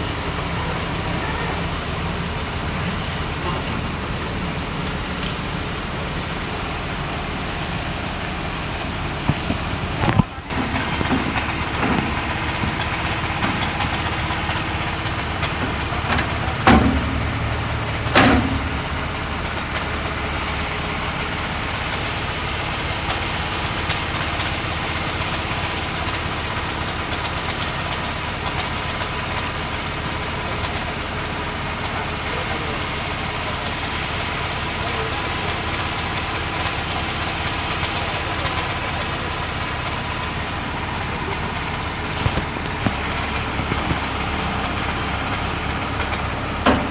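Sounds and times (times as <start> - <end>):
engine running: 0.0 - 46.9
sharp knocks: 15.4 - 19.2.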